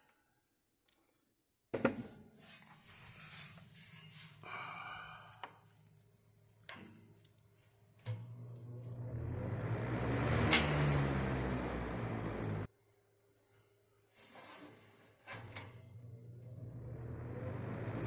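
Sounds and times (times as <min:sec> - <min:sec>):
fan motor spinning up: 0:08.1 - 0:12.7, 0:15.8 - 0:18.0.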